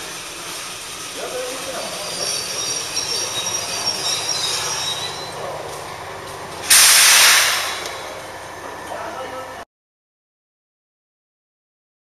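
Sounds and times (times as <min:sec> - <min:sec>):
train wheel squeal: 0:01.0 - 0:09.6
compressed air hiss: 0:06.6 - 0:08.1.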